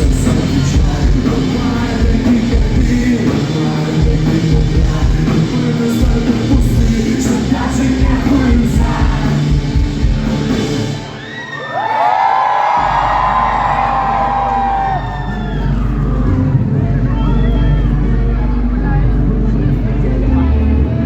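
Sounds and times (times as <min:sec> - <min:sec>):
person singing: 0:00.0 - 0:09.9
rock band playing: 0:00.0 - 0:11.6, 0:12.2 - 0:21.0.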